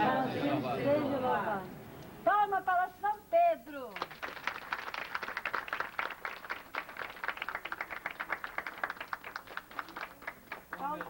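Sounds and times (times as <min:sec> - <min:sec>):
crowd applauding: 0:04.0 - 0:11.0.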